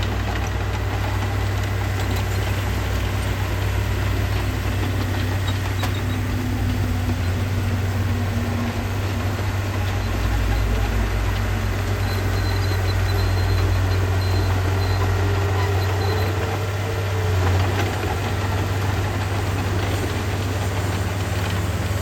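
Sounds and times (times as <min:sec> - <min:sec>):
diesel engine humming: 0:00.0 - 0:22.0.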